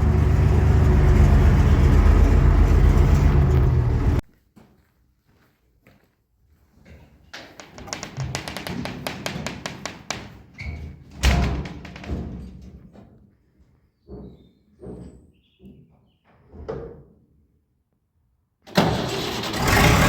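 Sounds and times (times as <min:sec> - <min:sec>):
taps and knocks: 0:07.4 - 0:10.4.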